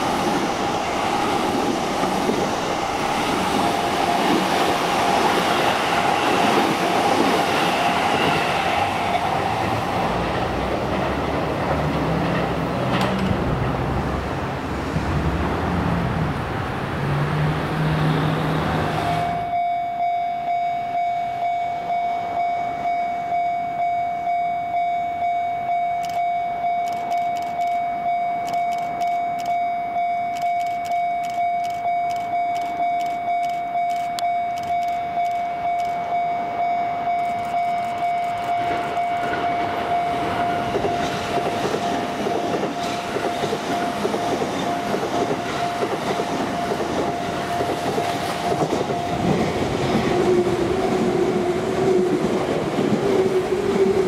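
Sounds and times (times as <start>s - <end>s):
electric train rumbling past: 0.0s - 27.1s, 31.2s - 54.0s
level crossing alarm ringing: 19.0s - 54.0s.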